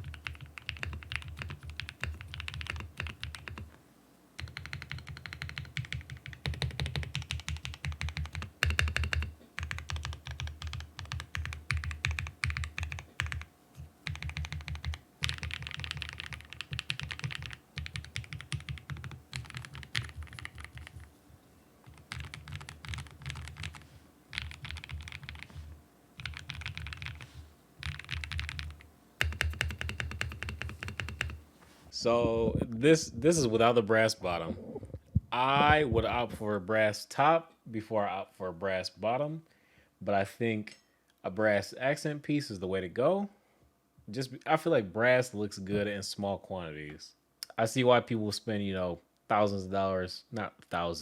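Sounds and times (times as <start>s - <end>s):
mechanical keyboard typing: 0.0s - 3.7s, 4.4s - 21.1s, 21.8s - 25.6s, 26.2s - 31.4s.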